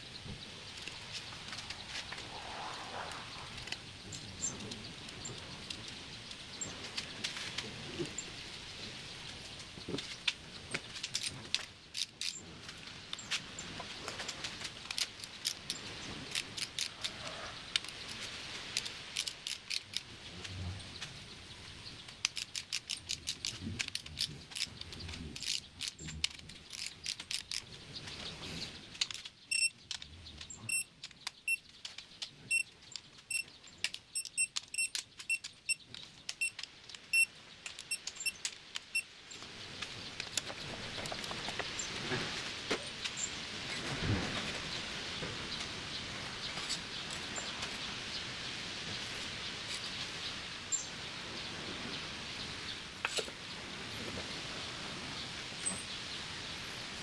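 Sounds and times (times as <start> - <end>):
tools and metal parts clicking: 10.7 - 12.5, 14.3 - 21.0, 22.0 - 27.8, 28.9 - 39.0.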